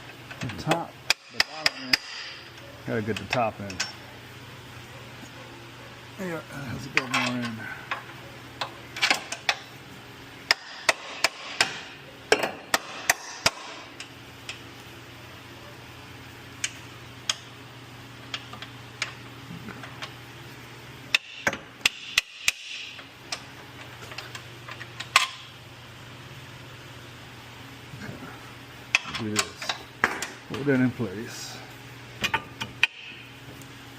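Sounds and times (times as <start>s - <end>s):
low steady hum: 0.0s - 33.9s
metal tools tapping and clanking: 0.3s - 4.0s, 6.8s - 9.7s, 32.2s - 33.2s.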